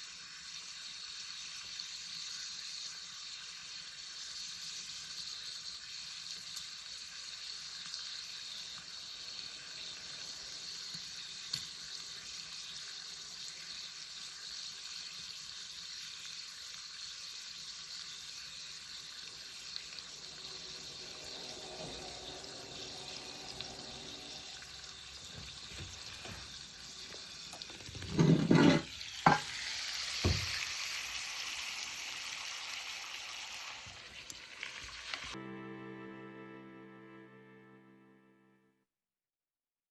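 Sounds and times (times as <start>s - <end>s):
meat sizzling over fire: 0.0s - 35.4s
insects chirping: 18.7s - 27.2s.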